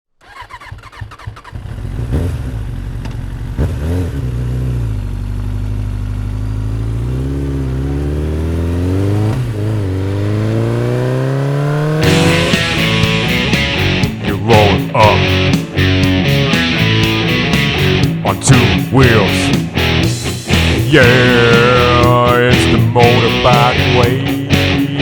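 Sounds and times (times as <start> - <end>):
motorcycle engine revving: 0.2 - 25.0
strummed electric guitar: 10.0 - 25.0.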